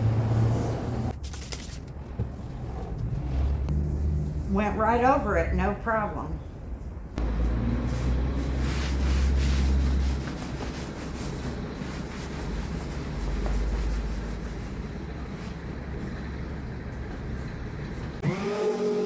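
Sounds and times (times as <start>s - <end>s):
power sander on car panel: 18.2s - 19.0s.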